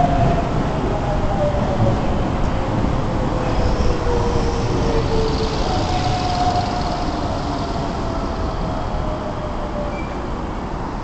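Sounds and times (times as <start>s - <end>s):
electric train braking: 3.3s - 9.0s.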